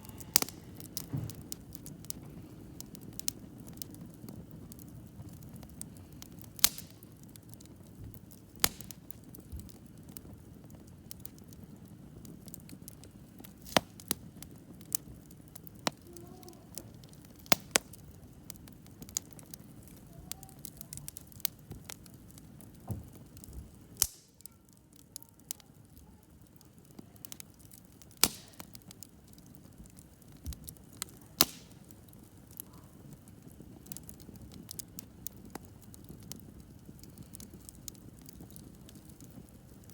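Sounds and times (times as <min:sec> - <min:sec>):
low steady rush: 0:00.0 - 0:02.8
sharp pops of fire: 0:00.0 - 0:39.9
wood fire crackling: 0:00.0 - 0:39.9.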